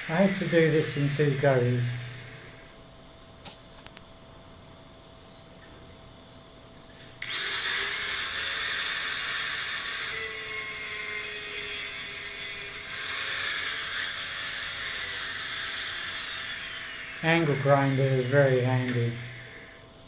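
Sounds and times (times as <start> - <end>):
angle grinder on metal: 7.2 - 19.8.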